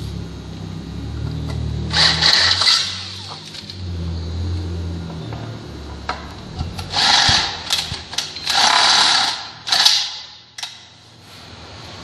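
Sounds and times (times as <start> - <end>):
drill boring into steel: 1.9 - 3.3, 6.9 - 7.6, 8.4 - 9.9.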